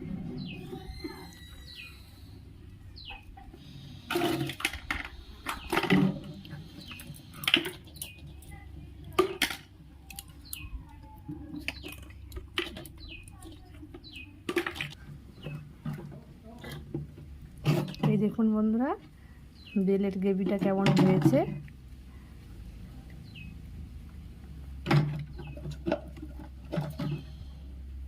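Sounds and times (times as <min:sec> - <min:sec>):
falling bird chirps: 0:00.2 - 0:02.4.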